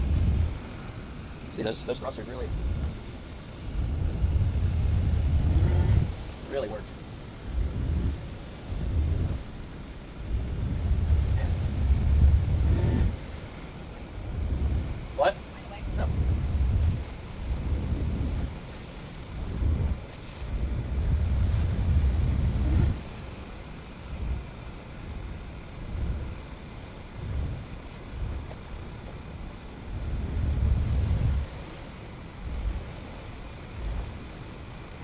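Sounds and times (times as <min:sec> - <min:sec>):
steady background hiss: 0:00.0 - 0:04.8
gusty wind buffeting microphone: 0:00.0 - 0:35.0.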